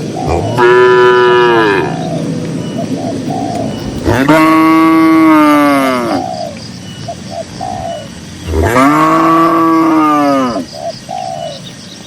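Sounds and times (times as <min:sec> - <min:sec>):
doves cooing: 0:00.0 - 0:11.8
cattle mooing: 0:00.3 - 0:02.1, 0:04.0 - 0:06.2, 0:08.5 - 0:10.6.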